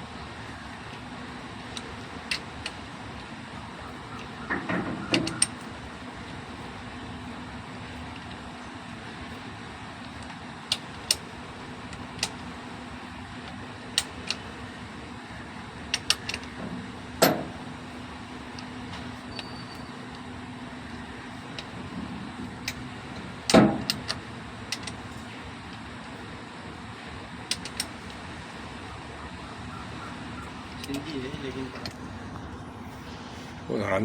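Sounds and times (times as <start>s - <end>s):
steady low hum: 0.0s - 34.0s
metal tools clicking and tapping: 4.0s - 5.7s, 15.9s - 17.7s, 18.5s - 20.3s, 21.4s - 22.9s, 23.5s - 25.8s, 27.5s - 28.2s, 30.4s - 32.0s.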